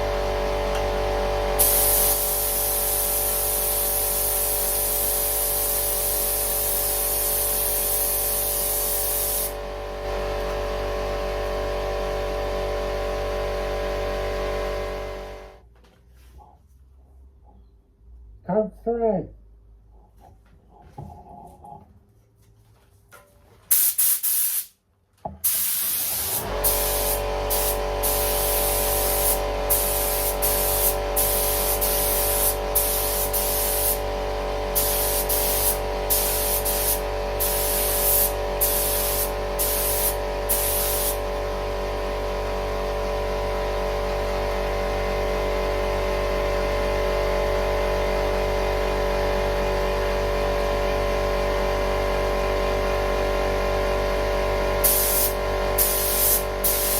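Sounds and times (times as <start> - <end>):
steady machine hum: 0.0 - 15.6, 26.1 - 56.9
spray gun hiss bursts: 1.5 - 9.6, 23.7 - 24.8, 25.4 - 41.4, 54.8 - 56.9.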